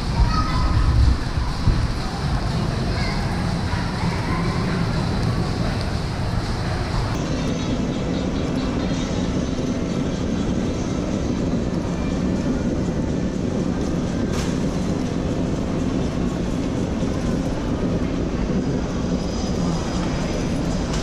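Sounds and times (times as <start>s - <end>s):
vehicle road noise rumble: 0.0s - 7.6s.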